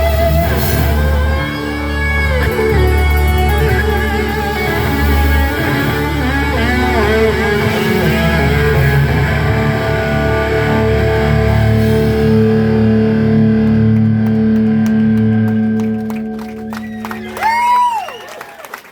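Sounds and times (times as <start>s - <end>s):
distorted electric guitar: 0.0s - 17.6s
live rock band: 0.0s - 18.4s.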